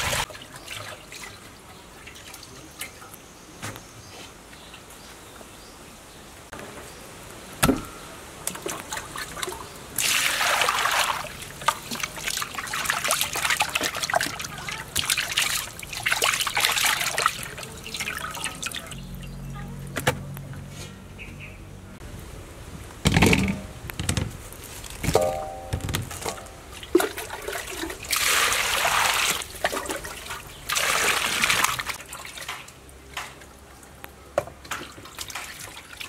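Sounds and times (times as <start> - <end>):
water sloshing in a metal bowl: 0.0 - 3.0, 8.4 - 19.2, 25.1 - 33.6, 34.6 - 36.0
sharp knocks: 25.0 - 26.4.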